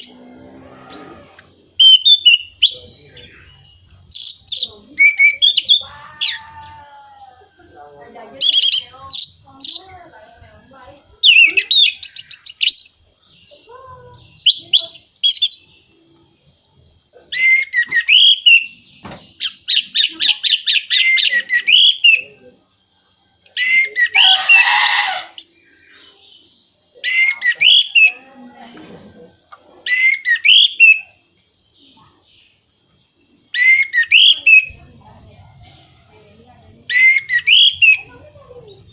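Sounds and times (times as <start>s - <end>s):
thrush singing whistled trills: 0.0s - 6.4s, 17.3s - 22.4s, 26.9s - 28.2s, 29.9s - 31.2s, 33.2s - 34.9s, 36.8s - 38.9s.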